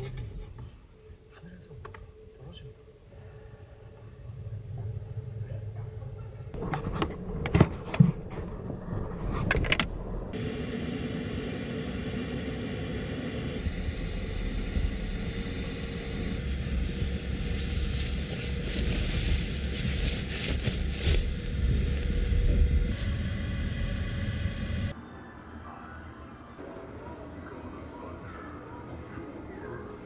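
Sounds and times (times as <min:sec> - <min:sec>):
vehicle engine rumbling: 0:04.6 - 0:24.9
sharp knocks and clunks: 0:06.6 - 0:09.9.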